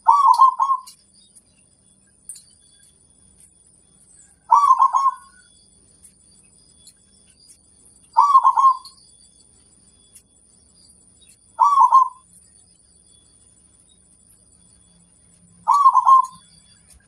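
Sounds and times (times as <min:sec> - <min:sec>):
dove cooing: 0:00.0 - 0:01.0, 0:04.4 - 0:05.4, 0:08.2 - 0:08.9, 0:11.6 - 0:12.2, 0:15.6 - 0:16.4
small birds chirping: 0:00.0 - 0:17.0.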